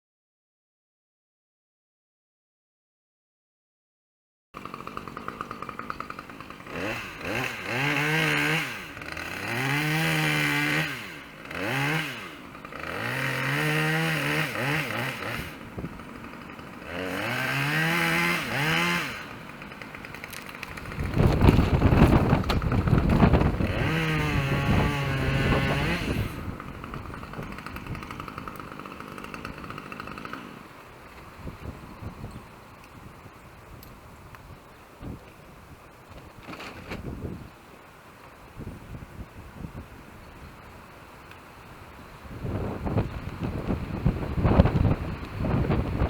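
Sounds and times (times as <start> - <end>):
chainsaw idling and revving: 4.6 - 31.9
rough loud noise: 4.6 - 32.2.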